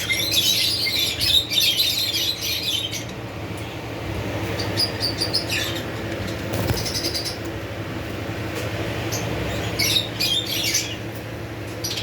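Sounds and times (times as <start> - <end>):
parrots chirping and squawking: 4.5 - 7.6.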